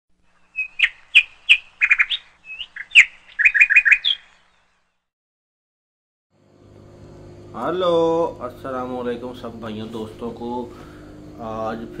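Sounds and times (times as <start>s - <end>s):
bird chirping: 0.2s - 5.1s.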